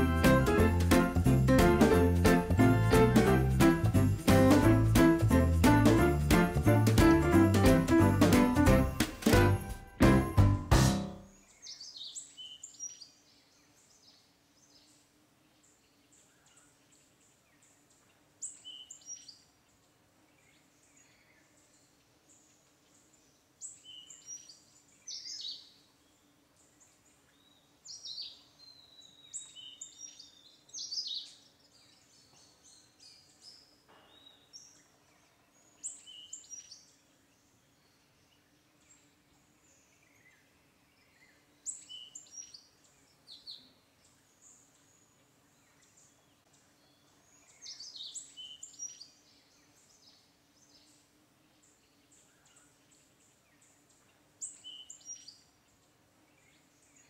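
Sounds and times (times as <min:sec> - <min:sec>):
small birds chirping: 0:11.3 - 0:57.0.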